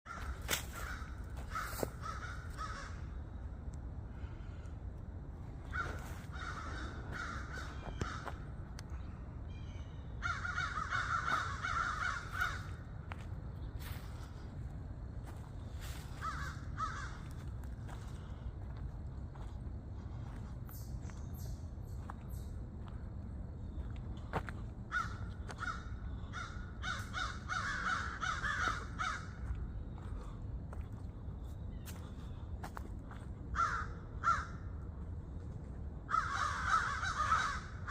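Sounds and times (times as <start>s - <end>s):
crows cawing harshly: 0.1s - 3.2s, 5.6s - 8.5s, 10.2s - 13.2s, 15.8s - 18.2s, 24.9s - 29.6s, 33.5s - 34.8s, 36.1s - 37.9s
low steady rumble: 0.1s - 37.9s.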